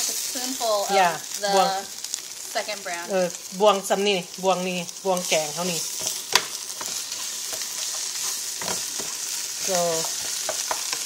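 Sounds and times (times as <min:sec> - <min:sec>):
paste sizzling in a frying pan: 0:00.0 - 0:11.0
wooden spoon scraping a pan: 0:05.3 - 0:11.0
spoon knocking on pan: 0:06.0 - 0:07.8, 0:08.6 - 0:09.2, 0:10.0 - 0:11.0.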